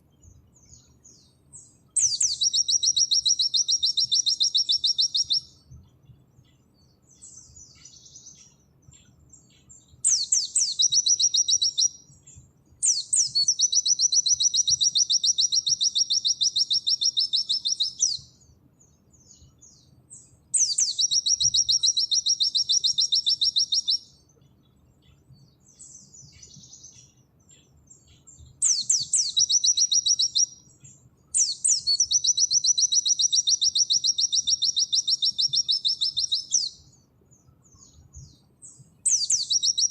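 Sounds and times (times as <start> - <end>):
soft bird twittering: 0.0 - 39.9
bird singing fast high trills: 0.6 - 5.6, 9.4 - 12.1, 12.8 - 18.4, 20.6 - 24.2, 28.0 - 37.0, 37.6 - 39.9.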